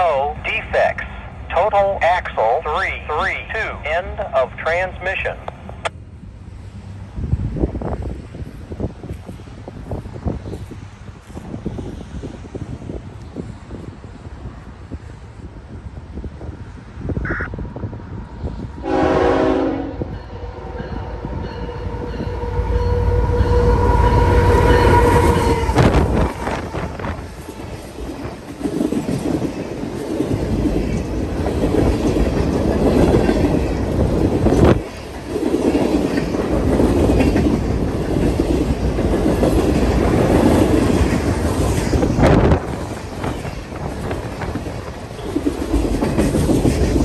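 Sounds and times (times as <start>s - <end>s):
heavy train rumble: 0.0s - 47.0s
train air horn blasts: 18.8s - 27.4s
wheels clattering on rail joints: 24.6s - 47.0s.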